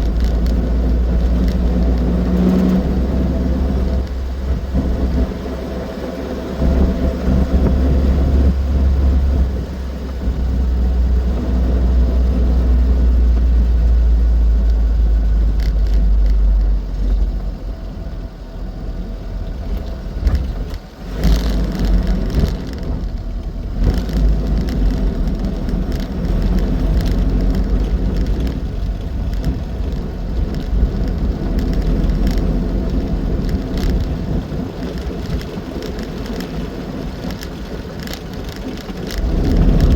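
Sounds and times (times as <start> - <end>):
road noise: 0.0 - 39.9
small car engine rumble: 0.0 - 39.9.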